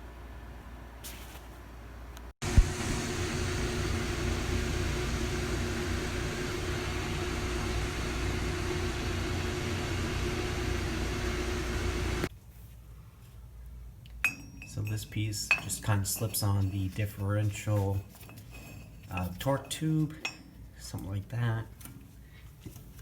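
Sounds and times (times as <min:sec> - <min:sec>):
machine hissing and humming: 0:02.4 - 0:12.3.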